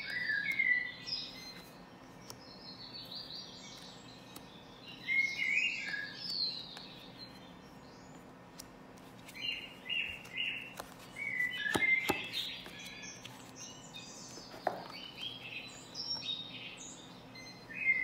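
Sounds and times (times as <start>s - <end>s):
birds chirping and twittering: 0.0s - 18.0s
cards clicking: 10.1s - 13.4s.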